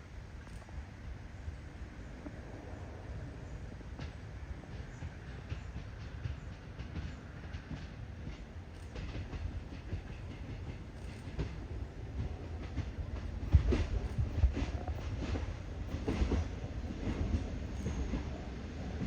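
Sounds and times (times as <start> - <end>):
railcar engine rumble: 0.0 - 19.0
wheels clattering over rail joints: 4.0 - 19.0.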